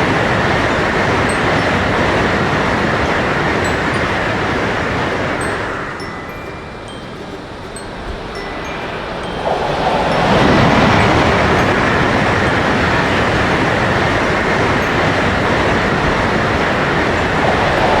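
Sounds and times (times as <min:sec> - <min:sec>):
train passing rumble: 0:00.0 - 0:18.0.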